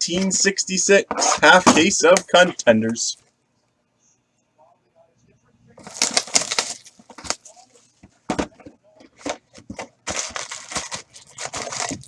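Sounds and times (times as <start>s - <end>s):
packaging crinkling and ripping: 5.8s - 8.0s, 9.2s - 12.0s.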